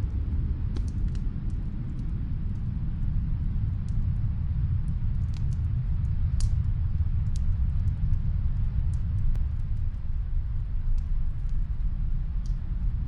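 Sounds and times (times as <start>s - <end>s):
faint fireplace crackles: 0.0s - 13.0s
snowstorm wind rumbling: 0.0s - 13.0s.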